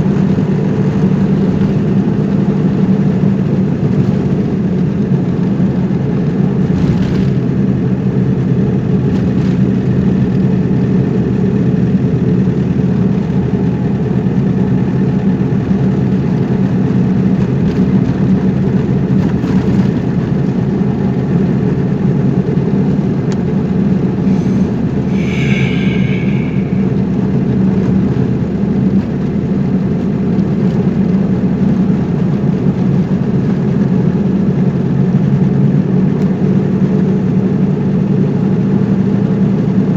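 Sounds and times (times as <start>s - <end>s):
car engine and road noise: 0.0s - 28.2s
brief high-pitched tone: 24.3s - 27.5s.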